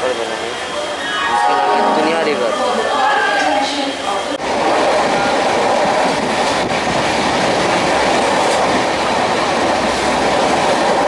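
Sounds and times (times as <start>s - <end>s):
train wheels rumbling and rattling: 3.4s - 11.0s.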